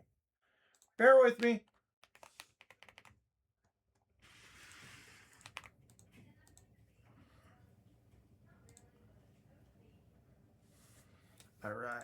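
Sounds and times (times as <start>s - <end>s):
computer keyboard typing clicks: 0.8s - 3.2s, 5.3s - 6.7s.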